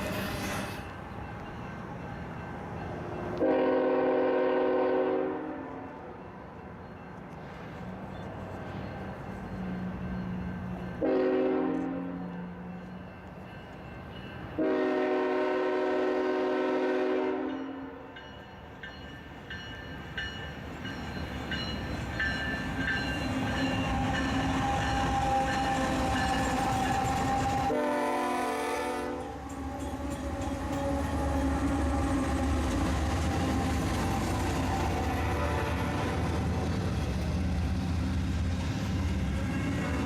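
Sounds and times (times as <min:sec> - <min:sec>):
train engines rumbling: 0:00.0 - 0:40.0
locomotive horn blasts: 0:03.4 - 0:05.9, 0:11.0 - 0:12.2, 0:14.6 - 0:18.0, 0:27.2 - 0:31.7, 0:35.2 - 0:36.2.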